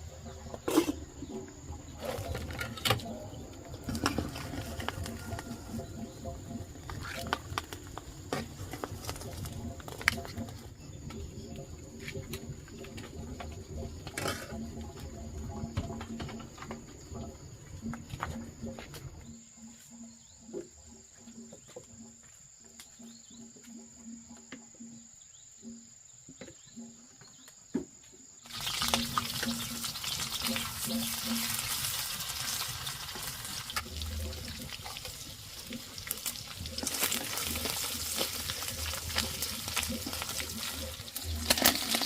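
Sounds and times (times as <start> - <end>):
high insect tone: 0.0 - 42.0
food sizzling in hot oil: 28.4 - 42.0.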